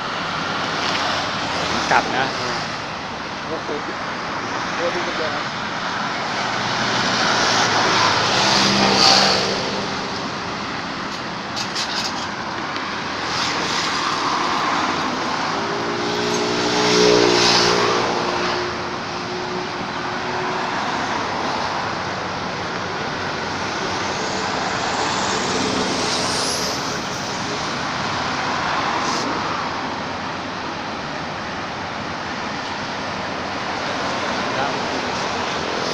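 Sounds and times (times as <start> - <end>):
loud vehicle engines passing: 0.0 - 35.9
road traffic passing: 0.0 - 35.9.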